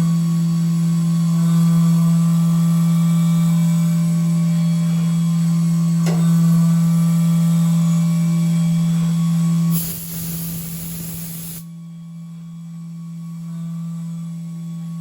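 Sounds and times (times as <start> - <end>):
milling machine spindle hum: 4.6 - 9.6
spray hissing: 9.8 - 11.6.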